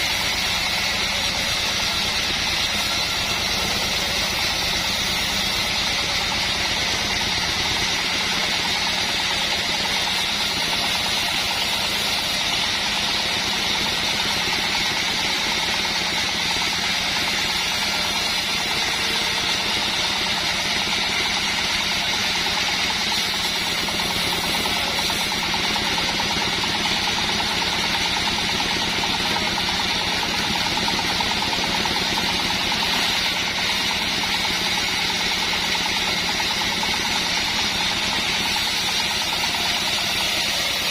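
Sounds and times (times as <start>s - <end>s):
band blade hissing: 0.0s - 40.9s
sawmill engine running: 0.0s - 40.9s.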